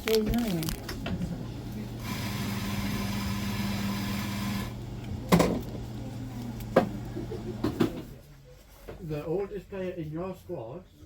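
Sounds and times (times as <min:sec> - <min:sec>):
machine hum: 0:00.9 - 0:08.1.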